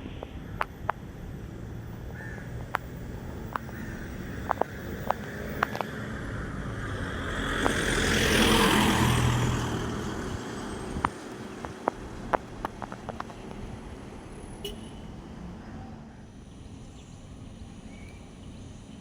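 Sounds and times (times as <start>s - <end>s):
sharp ticks: 0.0s - 14.9s
vehicle passing by: 1.1s - 16.1s.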